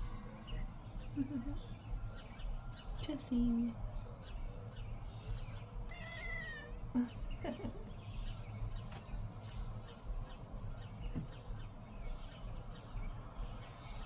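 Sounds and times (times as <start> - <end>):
cat meowing: 5.9 - 6.8.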